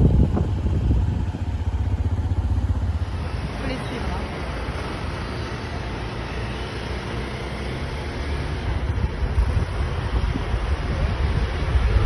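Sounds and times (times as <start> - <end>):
wind rumbling on microphone: 0.0 - 3.6, 8.7 - 12.0
motorbike engine running: 0.0 - 3.8.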